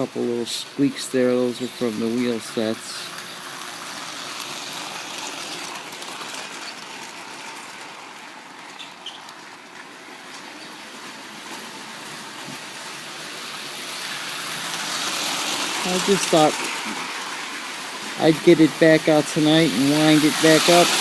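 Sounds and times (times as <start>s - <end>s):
toy train whirring on track: 0.0s - 21.0s
wheel squeak: 8.7s - 9.7s.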